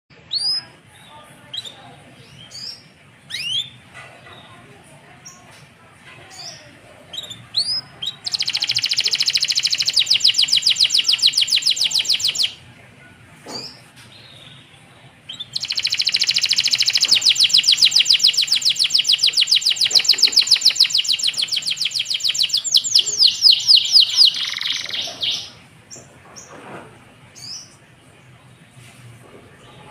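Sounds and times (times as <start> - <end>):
canary chirps: 0.1 - 12.6, 13.5 - 26.6
canary trilling: 1.5 - 4.5, 6.3 - 12.6, 15.3 - 25.6.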